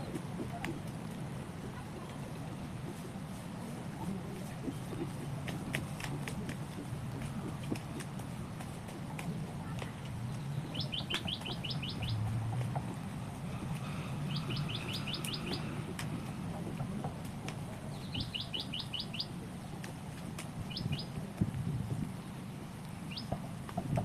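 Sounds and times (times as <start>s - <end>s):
small songbird calling: 10.3s - 12.3s, 13.8s - 15.8s, 17.9s - 19.4s, 20.6s - 21.2s, 23.1s - 23.4s.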